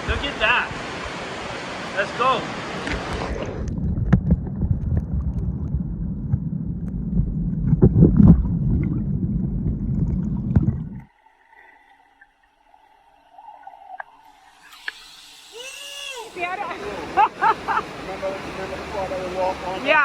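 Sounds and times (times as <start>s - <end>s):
waterfall rushing and gurgling: 0.0s - 3.6s, 16.2s - 20.0s.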